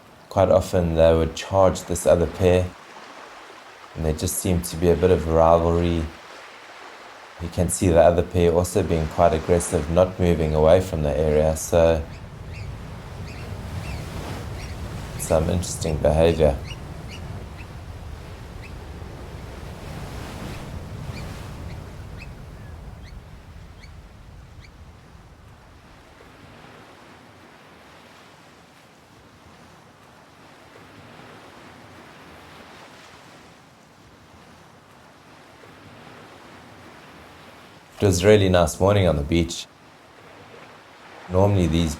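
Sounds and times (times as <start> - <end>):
surf washing on beach: 0.0 - 41.9
low wind rumble: 7.2 - 26.6
high piping bird calls: 11.9 - 17.8, 20.5 - 24.0.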